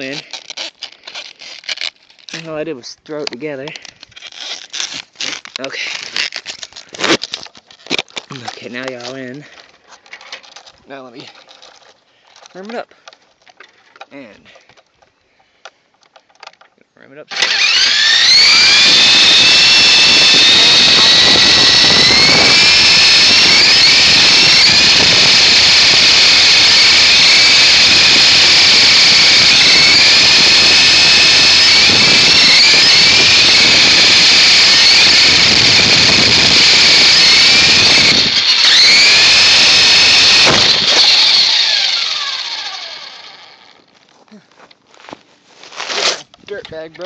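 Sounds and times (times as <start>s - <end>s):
rc helicopter motor whining: 17.3s - 43.8s.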